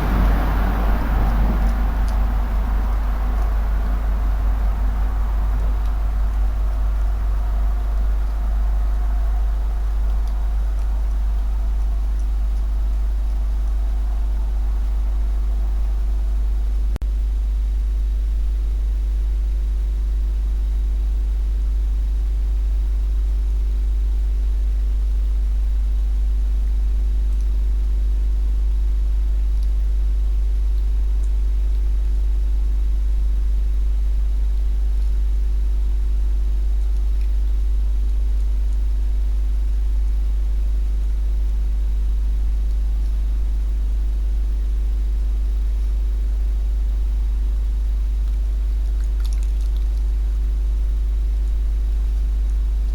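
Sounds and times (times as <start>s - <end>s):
faint steady tones: 0.0s - 16.9s
steady low hum: 0.0s - 52.9s.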